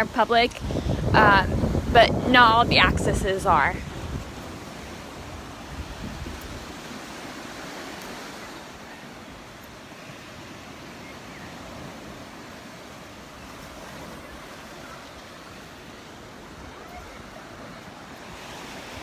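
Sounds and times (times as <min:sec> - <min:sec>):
small waves breaking on sand: 0:00.0 - 0:19.0
wind on microphone: 0:00.0 - 0:19.0.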